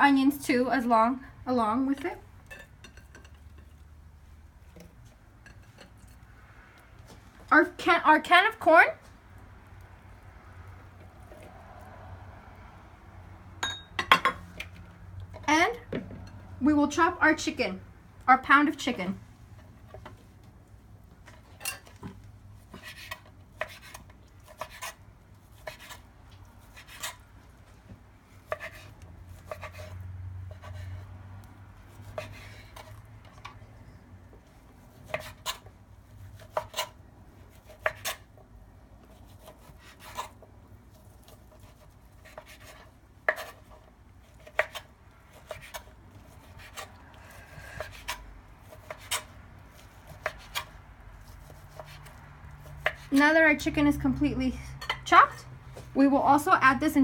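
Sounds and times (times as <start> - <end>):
knife chopping on cutting board: 22.7 - 25.0, 25.6 - 26.0, 26.7 - 27.2, 28.5 - 29.9, 35.0 - 35.7, 36.4 - 38.2, 41.6 - 43.8, 44.4 - 49.3, 50.1 - 50.7, 51.4 - 53.2.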